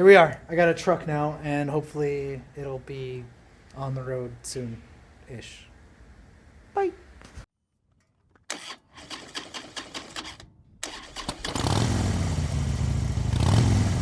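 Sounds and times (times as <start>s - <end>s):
engine starter clicking: 8.4s - 11.9s
engine running steadily: 11.4s - 14.0s.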